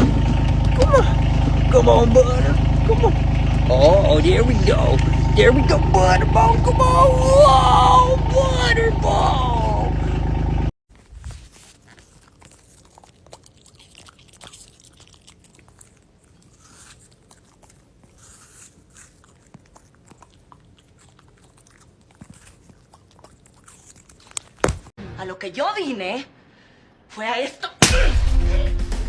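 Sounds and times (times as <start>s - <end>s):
dog chewing: 11.2s - 24.9s.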